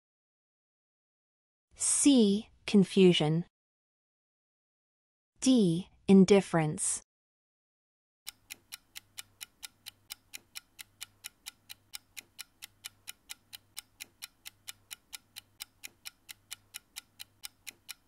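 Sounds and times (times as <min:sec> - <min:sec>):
clock ticking: 0:08.3 - 0:18.0.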